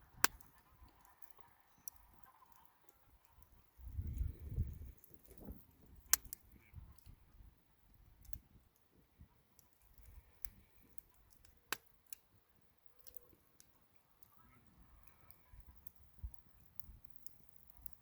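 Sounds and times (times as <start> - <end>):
sharp pops of fire: 0.0 - 2.2, 3.8 - 7.2
campfire crackling: 0.0 - 18.0.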